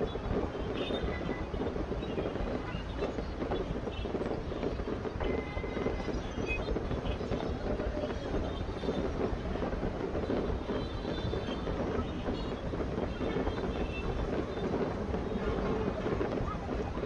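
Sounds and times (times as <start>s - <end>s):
distant fireworks rumbling: 0.0s - 17.0s
murmur of crowd voices: 0.0s - 17.0s
wind buffeting microphone: 0.0s - 17.0s.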